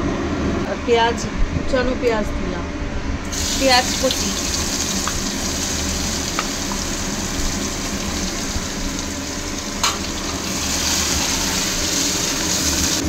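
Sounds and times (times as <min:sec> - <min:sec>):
onion sizzling in hot oil: 0:03.3 - 0:13.0.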